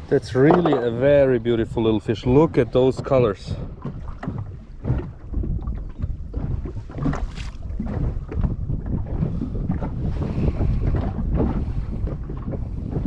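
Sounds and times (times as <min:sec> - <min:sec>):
water moving around hull: 0:00.0 - 0:13.0
wind buffeting microphone: 0:00.0 - 0:13.0
small knocks: 0:00.4 - 0:01.0.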